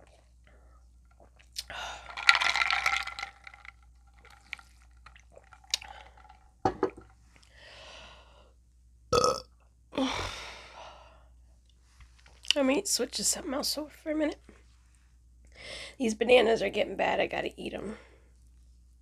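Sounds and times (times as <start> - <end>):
woman burping: 9.2 - 9.4.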